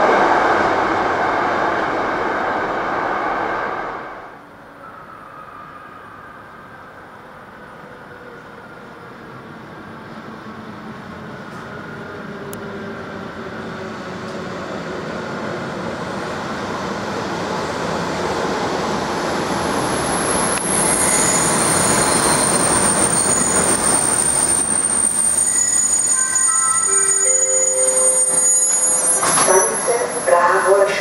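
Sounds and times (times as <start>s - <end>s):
train rolling noise: 0.0s - 31.0s
high-pitched wheel squeal: 19.8s - 30.5s.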